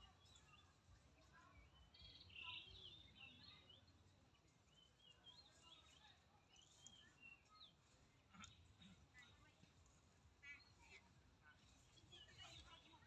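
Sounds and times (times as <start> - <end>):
faint birdsong chirps and whistles: 0.0 - 0.8, 1.5 - 8.8.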